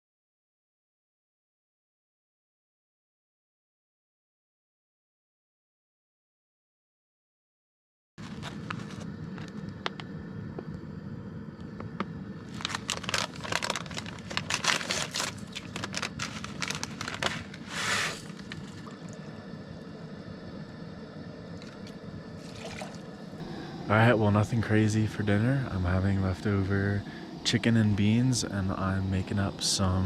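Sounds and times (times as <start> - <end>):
plastic food package rustling: 8.2 - 9.6, 12.5 - 18.8
quick crackles and clicks: 8.2 - 10.8, 11.6 - 19.0
steady background hiss: 8.2 - 30.0.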